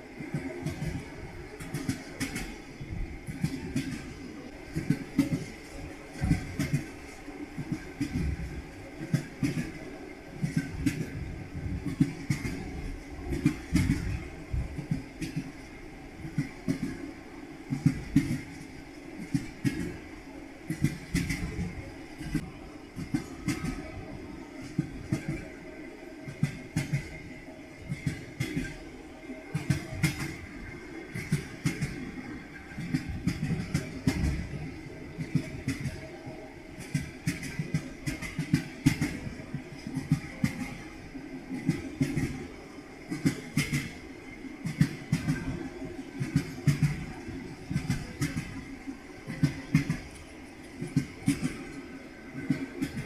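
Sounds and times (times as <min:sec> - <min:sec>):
train wheels clattering over rail joints: 0:00.0 - 0:02.6, 0:03.2 - 0:17.0, 0:17.7 - 0:20.1, 0:20.7 - 0:25.6, 0:26.3 - 0:28.8, 0:29.5 - 0:36.1, 0:36.7 - 0:40.9, 0:43.1 - 0:44.0, 0:46.2 - 0:48.6, 0:49.3 - 0:51.8, 0:52.4 - 0:53.0.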